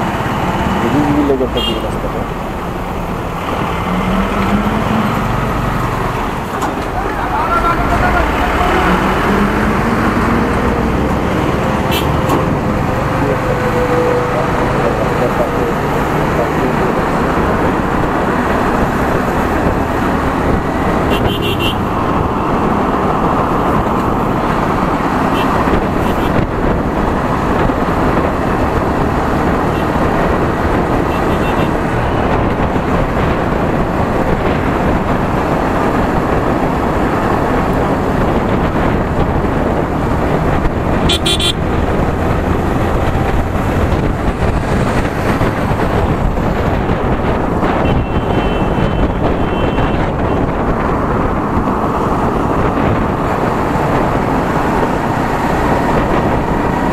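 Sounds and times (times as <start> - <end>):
wind and road noise: 0.0 - 56.9
vehicle horn honking: 1.6 - 2.0, 11.9 - 12.3, 21.1 - 21.9, 25.3 - 26.4, 31.1 - 31.8, 41.0 - 41.6, 47.8 - 50.4.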